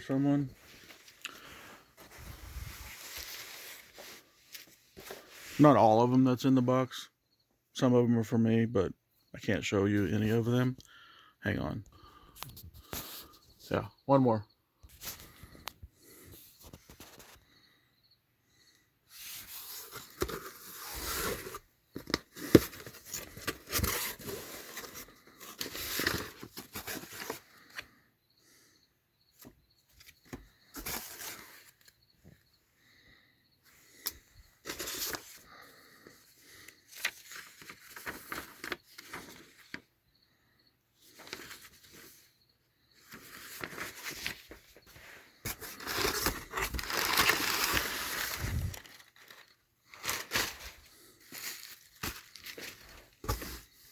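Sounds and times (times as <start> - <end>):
tape and cardboard tearing: 19.6 - 24.8
packing material crinkling: 43.1 - 53.9.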